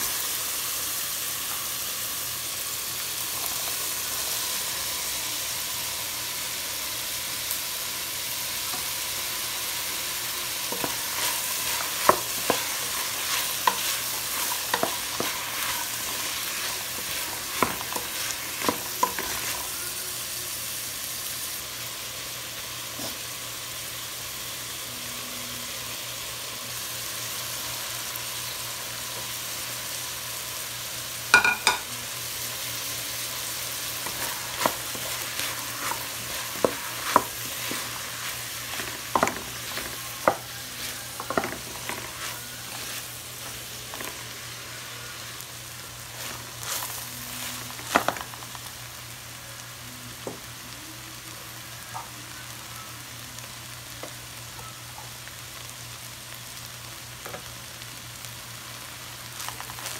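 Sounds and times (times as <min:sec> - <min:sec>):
vegetables sizzling in a pot: 0:00.0 - 0:59.9
wooden spatula scraping a pot: 0:10.6 - 0:19.7, 0:34.0 - 0:44.3.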